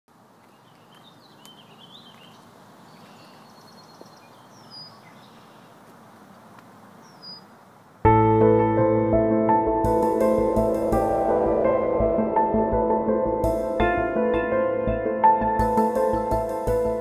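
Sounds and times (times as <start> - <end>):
bird chirps and calls: 0.5 - 5.8, 7.0 - 7.5
soft ambient music: 8.1 - 17.0.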